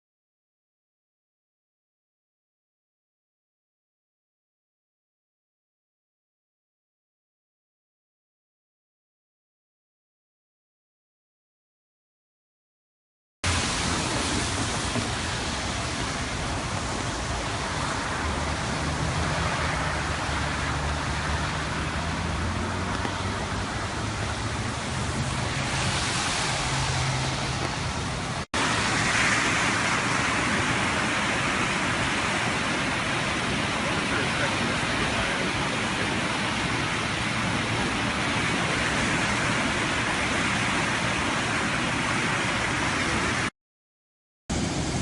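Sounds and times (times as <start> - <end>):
floodwater rushing: 13.4 - 43.5, 44.5 - 45.0.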